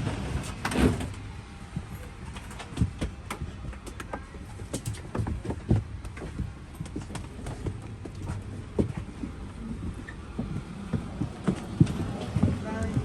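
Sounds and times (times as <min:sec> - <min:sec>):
footsteps on hard floor: 0:02.7 - 0:13.0.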